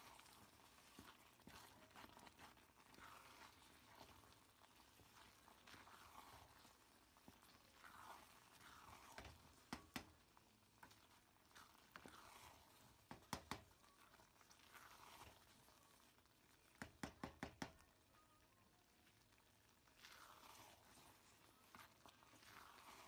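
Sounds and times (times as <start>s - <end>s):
wooden spoon stirring stew: 0.0s - 23.0s
spoon knocking metal pot: 9.7s - 10.1s, 16.8s - 17.8s.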